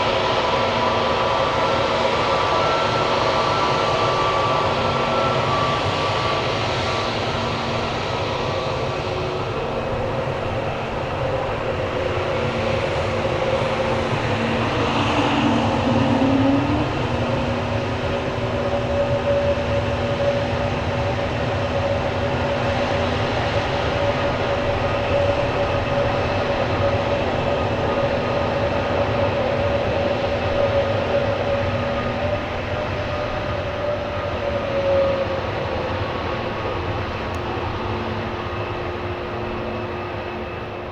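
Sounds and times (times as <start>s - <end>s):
jet engines running: 0.0s - 40.9s.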